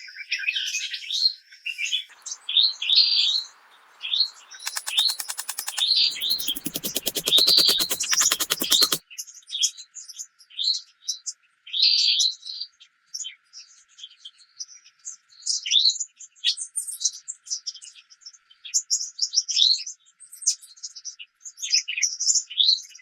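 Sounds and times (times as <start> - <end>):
birds chirping: 3.5 - 9.0
fast run of clicks: 4.6 - 9.0.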